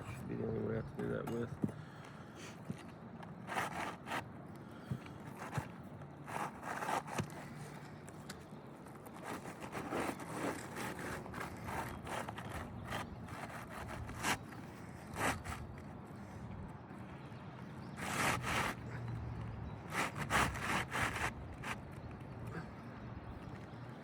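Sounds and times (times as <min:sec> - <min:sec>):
roof shingles scraping and rustling: 0:05.3 - 0:07.8, 0:08.9 - 0:16.3, 0:18.0 - 0:19.0, 0:19.8 - 0:22.0.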